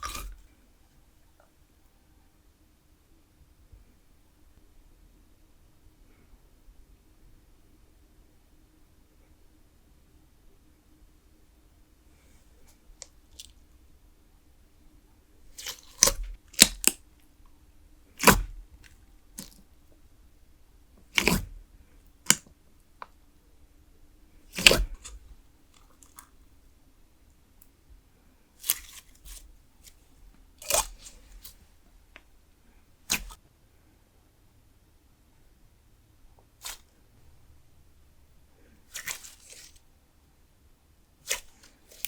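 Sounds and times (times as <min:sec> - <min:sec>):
slime clicking and crackling: 0:15.5 - 0:17.0, 0:18.2 - 0:19.6, 0:21.1 - 0:21.6, 0:22.2 - 0:22.5, 0:24.5 - 0:26.3, 0:30.6 - 0:31.6, 0:33.1 - 0:33.4, 0:36.6 - 0:36.9, 0:41.3 - 0:42.0.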